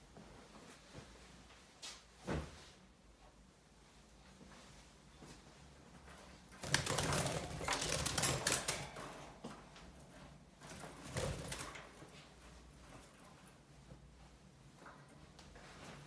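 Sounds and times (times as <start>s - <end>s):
birds rustling and clicking: 6.1s - 12.2s.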